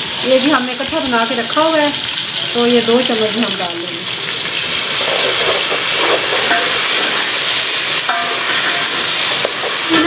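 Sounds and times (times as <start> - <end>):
food sizzling in a pot: 0.0 - 10.0
metal spoon stirring: 4.6 - 10.0.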